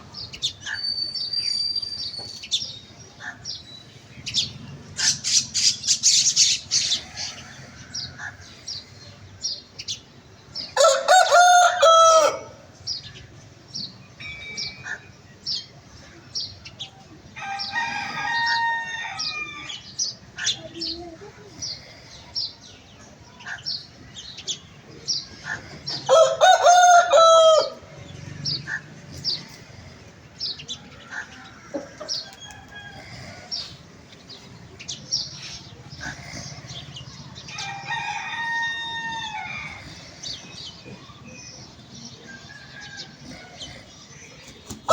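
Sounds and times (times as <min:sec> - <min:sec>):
rooster crowing: 0:10.8 - 0:12.6, 0:17.4 - 0:19.8, 0:26.1 - 0:28.0, 0:37.5 - 0:40.0.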